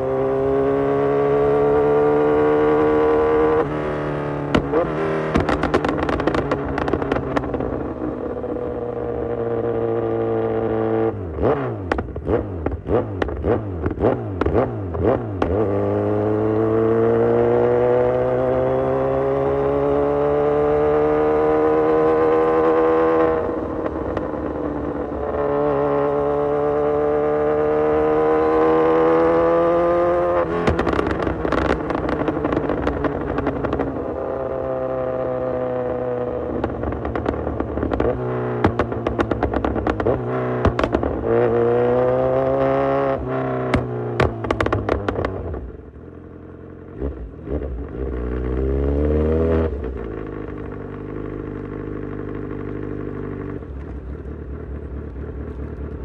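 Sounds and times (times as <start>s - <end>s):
motorcycle engine revving: 0.0s - 56.0s
exhaust crackling and popping: 4.4s - 9.0s, 30.4s - 34.6s, 36.1s - 41.6s, 43.2s - 45.8s, 49.8s - 56.0s.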